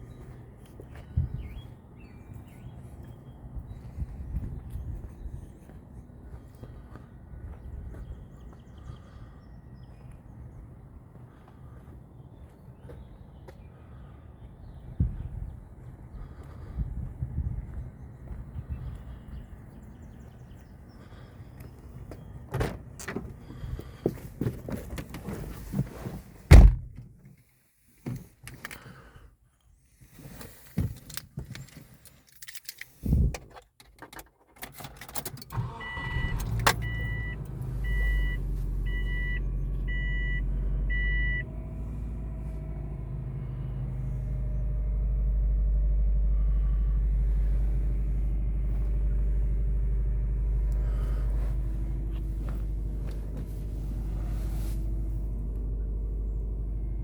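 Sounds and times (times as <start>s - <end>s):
car door shutting: 22.5s - 23.4s, 26.5s - 27.1s, 47.4s - 56.0s
keys jangling: 31.0s - 33.0s
car engine starting and idling: 34.6s - 57.0s
warning chime beeping: 35.8s - 41.4s.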